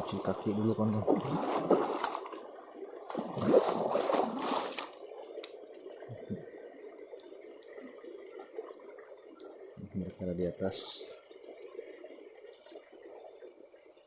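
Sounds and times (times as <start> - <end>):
water splashing in a stream: 0.0 - 5.8
flowing stream: 0.0 - 14.0
small clicks: 6.9 - 7.8, 9.2 - 11.2.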